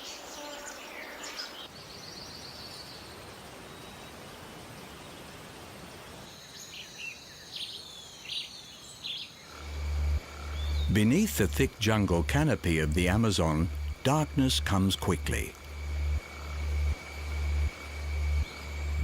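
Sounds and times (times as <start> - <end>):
background hiss: 0.0 - 19.0
birds chirping: 6.4 - 19.0.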